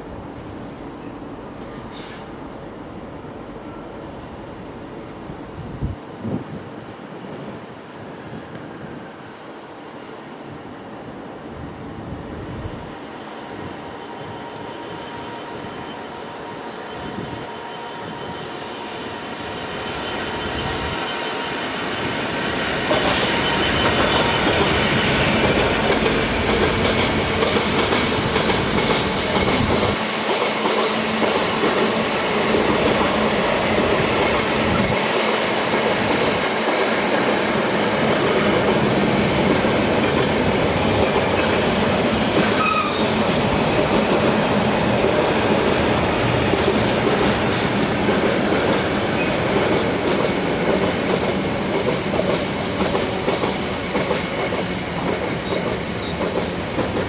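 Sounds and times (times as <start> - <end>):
train wheels rushing on rails: 0.0 - 57.0
wheels squealing on rails: 13.2 - 36.4, 39.4 - 57.0.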